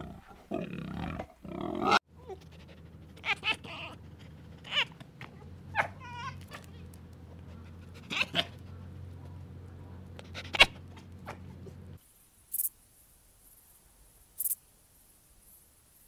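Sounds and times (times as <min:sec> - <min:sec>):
fox yelping calls: 0:03.1 - 0:06.8, 0:07.4 - 0:08.9.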